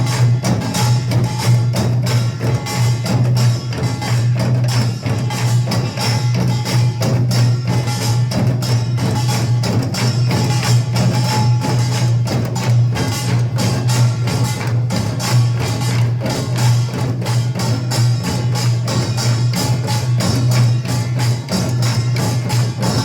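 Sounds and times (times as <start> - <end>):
drums and hand percussion beating: 0.0 - 23.0.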